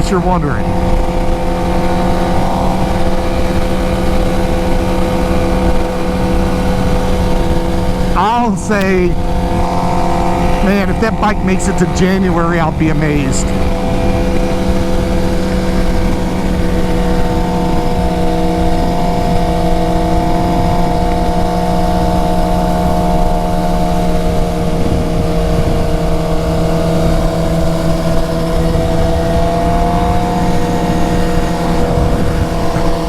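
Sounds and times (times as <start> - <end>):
motorcycle engine cruising: 0.5 - 11.2, 13.4 - 33.0
wind noise on microphone: 13.5 - 33.0.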